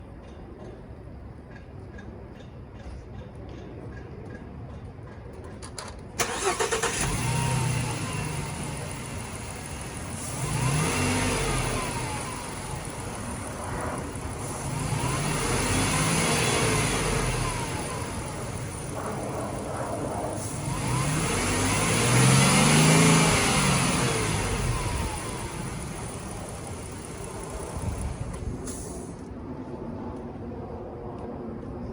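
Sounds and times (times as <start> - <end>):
van engine cranking and starting: 5.6 - 29.3
engine revving: 6.2 - 29.2
van engine idling: 6.2 - 29.3.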